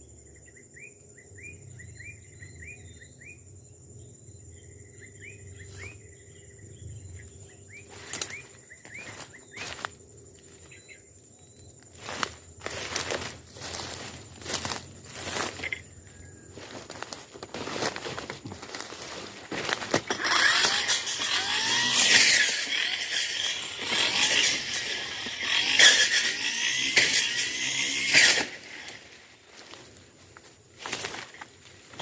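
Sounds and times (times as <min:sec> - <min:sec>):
brush cutter engine revving: 0:07.9 - 0:10.6, 0:11.9 - 0:15.9, 0:16.5 - 0:32.0.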